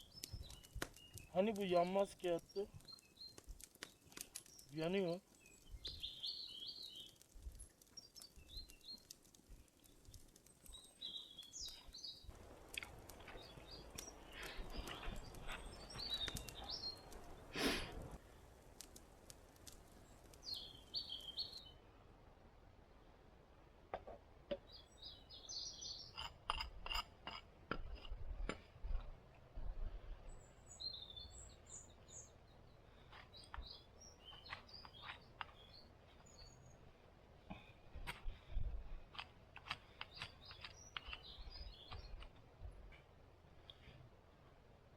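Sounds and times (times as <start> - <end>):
sharp clicks and ticks: 0.0 - 6.2, 6.8 - 20.8, 39.1 - 42.3
small birds chirping: 0.0 - 21.8, 24.6 - 27.1, 29.6 - 42.8.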